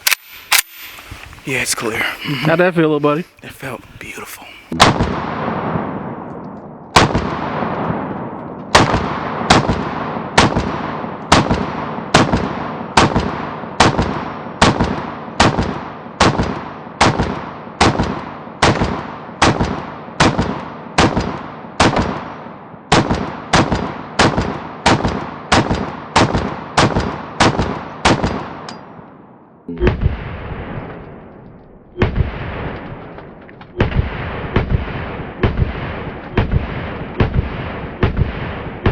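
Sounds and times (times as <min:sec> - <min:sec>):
heavier dull gunshots: 0:04.8 - 0:29.1, 0:29.8 - 0:38.9
rapid gunshots: 0:33.7 - 0:38.9.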